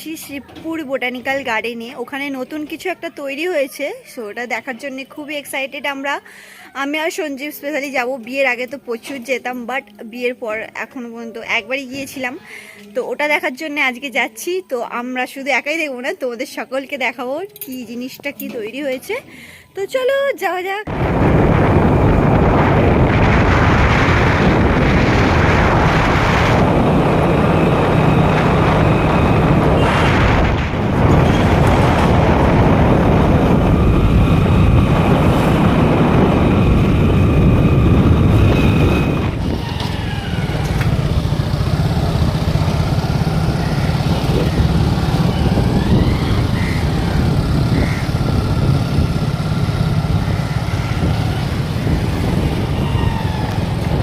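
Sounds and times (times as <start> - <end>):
motorcycle engine: 20.9 - 54.0
traffic noise: 20.9 - 54.0.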